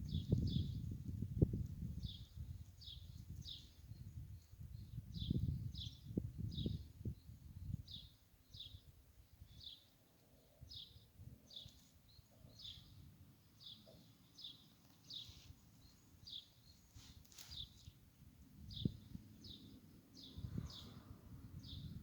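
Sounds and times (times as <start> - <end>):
songbird chirping: 0.0 - 22.0
low rustle: 16.8 - 17.9.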